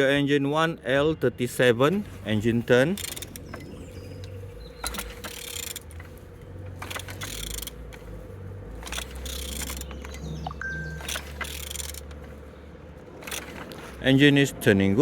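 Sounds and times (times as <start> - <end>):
diesel engine turned by hand: 0.0 - 15.0
mechanical clicks and clunks: 2.8 - 8.1, 8.7 - 12.4, 13.1 - 13.8.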